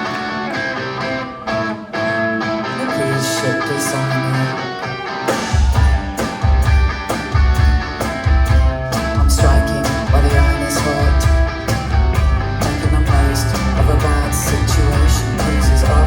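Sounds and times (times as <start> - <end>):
guitar lines: 0.0 - 16.0
heavy drum and bass beat: 5.3 - 16.0.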